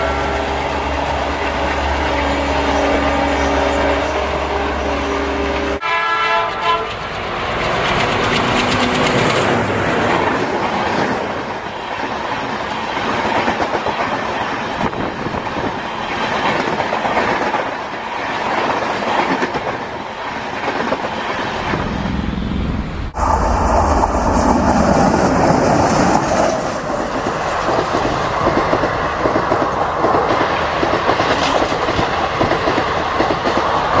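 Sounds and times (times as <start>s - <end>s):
train wheels rumbling and clattering: 0.0s - 4.5s, 6.9s - 34.0s
train horn: 0.0s - 7.1s.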